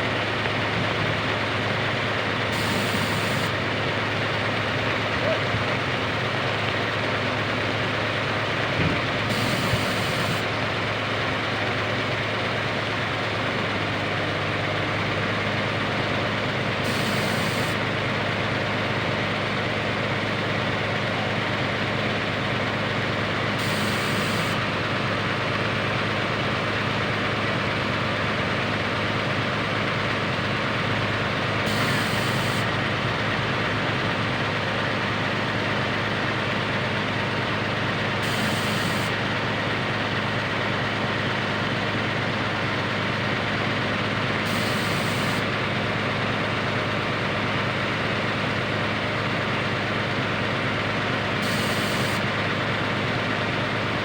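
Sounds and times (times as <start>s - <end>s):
diesel engine running: 0.0s - 54.0s
rain hiss: 2.6s - 3.5s, 31.7s - 32.6s, 38.2s - 39.1s, 44.5s - 45.4s, 51.4s - 52.2s.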